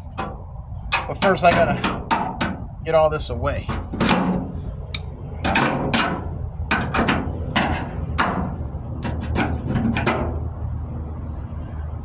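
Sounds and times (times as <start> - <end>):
hammer striking sheet metal: 0.0 - 2.8, 3.6 - 10.4.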